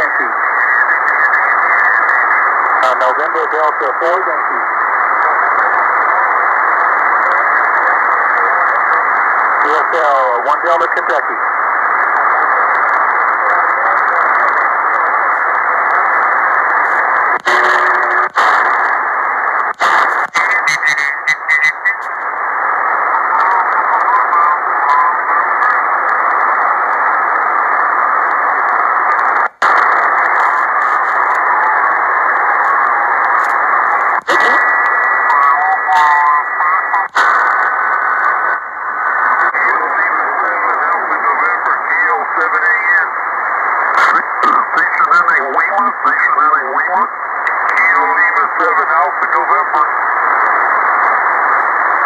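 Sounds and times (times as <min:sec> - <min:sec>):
garbled radio voices: 0:00.0 - 0:52.0
radio static hiss: 0:00.0 - 0:52.0
radio clicks: 0:10.9 - 0:52.0.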